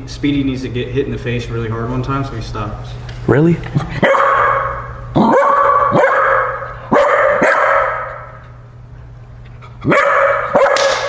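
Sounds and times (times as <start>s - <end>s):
dog barking: 4.0s - 8.4s, 9.8s - 11.0s.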